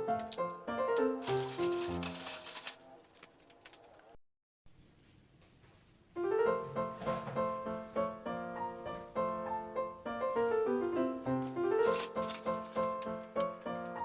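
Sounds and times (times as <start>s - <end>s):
piano music: 0.0s - 3.0s, 6.2s - 14.0s.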